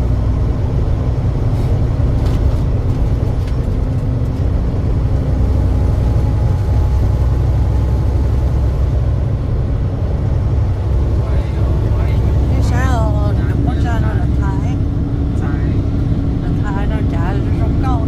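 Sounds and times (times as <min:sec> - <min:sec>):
truck engine and road noise: 0:00.0 - 0:18.0.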